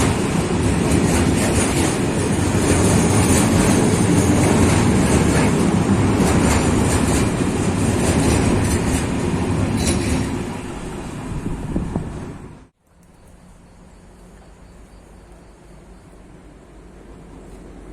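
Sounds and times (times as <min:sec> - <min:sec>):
freight train rumbling: 0:00.0 - 0:17.9.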